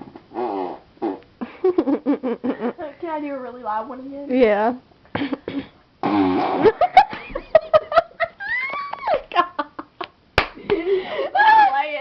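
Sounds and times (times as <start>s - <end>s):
arm fart noise: 0.0s - 1.4s, 5.5s - 7.0s
child giggling: 10.7s - 12.0s.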